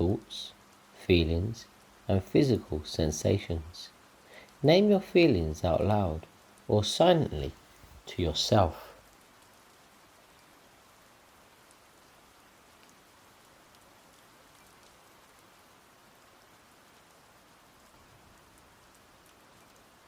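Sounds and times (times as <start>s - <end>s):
light rain patter: 0.0s - 20.0s.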